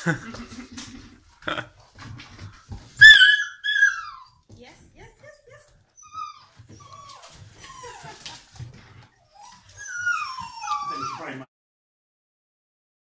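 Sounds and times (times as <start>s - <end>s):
puppy whining: 3.0s - 4.4s, 5.9s - 11.5s.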